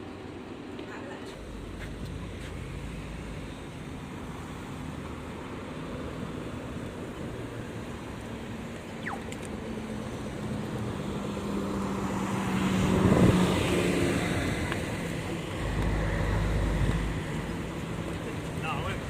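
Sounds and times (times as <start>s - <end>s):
street traffic: 0.0s - 19.0s
vehicle passing close by: 10.0s - 19.0s.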